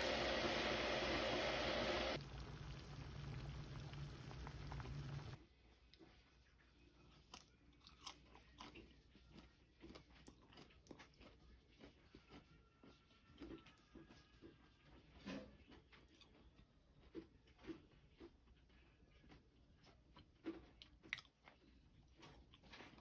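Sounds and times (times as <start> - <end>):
steady rushing noise: 0.0 - 2.2
person chewing crisp food: 7.1 - 14.3, 15.7 - 23.0.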